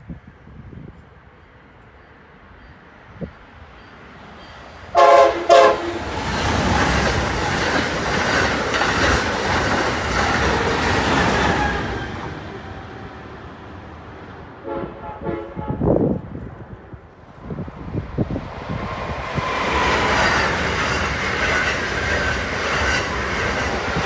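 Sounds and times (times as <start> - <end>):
high-speed train passing: 0.0 - 24.0
train horn blasts: 4.9 - 6.1, 14.6 - 16.2.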